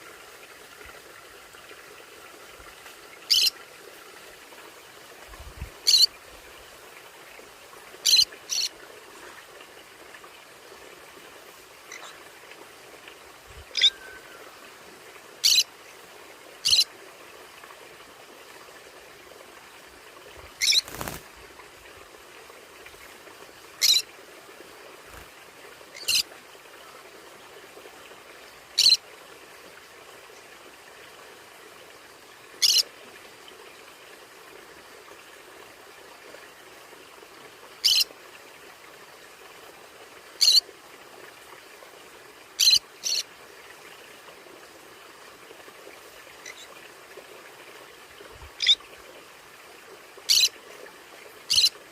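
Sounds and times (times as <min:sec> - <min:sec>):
faint hiss: 0:00.0 - 0:51.7
parrot high-pitched calls: 0:03.3 - 0:03.5, 0:05.9 - 0:06.1, 0:08.0 - 0:08.7, 0:13.7 - 0:14.3, 0:15.4 - 0:15.7, 0:16.6 - 0:16.8, 0:20.6 - 0:21.2, 0:23.8 - 0:24.0, 0:28.8 - 0:29.0, 0:40.4 - 0:40.6, 0:50.3 - 0:50.5, 0:51.5 - 0:51.7.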